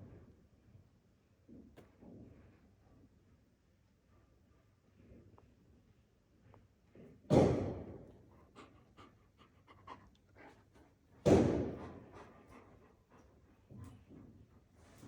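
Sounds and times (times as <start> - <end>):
dog panting: 8.2 - 14.7.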